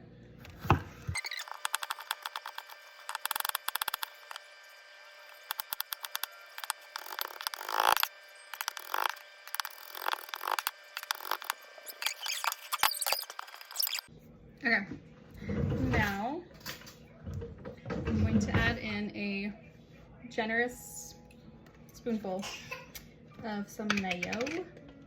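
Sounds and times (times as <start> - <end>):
knife scraping cutting board: 0.5 - 4.4, 5.4 - 14.0.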